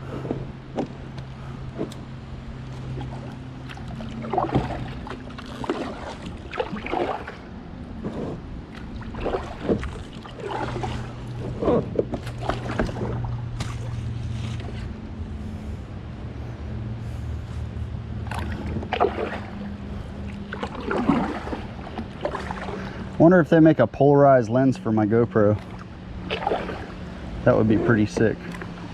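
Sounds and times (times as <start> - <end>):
steady low hum: 0.0 - 28.9
kayak paddle splashing in water: 1.7 - 15.0, 18.2 - 23.3, 25.6 - 28.9.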